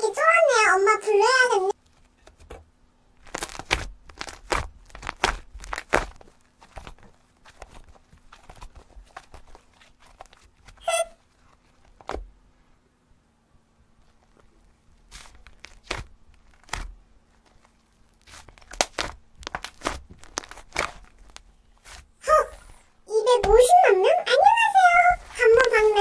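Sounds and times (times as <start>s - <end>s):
slime squeak: 10.6s - 11.3s, 18.2s - 21.2s, 21.8s - 26.0s
slime squishing sticky clicks: 18.2s - 22.0s.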